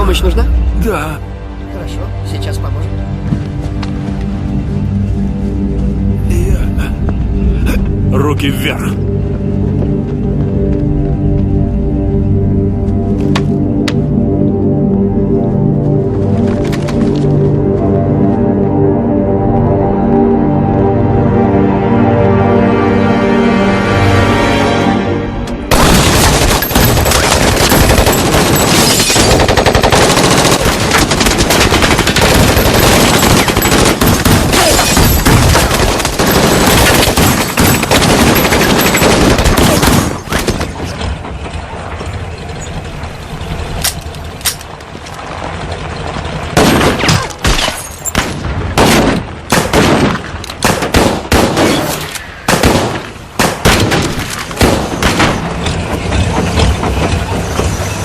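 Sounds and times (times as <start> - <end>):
heavy gunfire volley: 46.6 - 51.9, 52.5 - 55.5.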